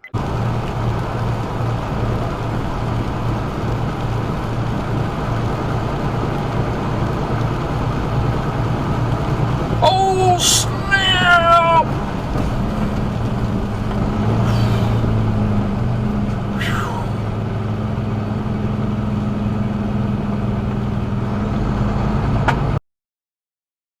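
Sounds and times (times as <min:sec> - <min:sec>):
vehicle engine and road noise: 0:00.0 - 0:22.8.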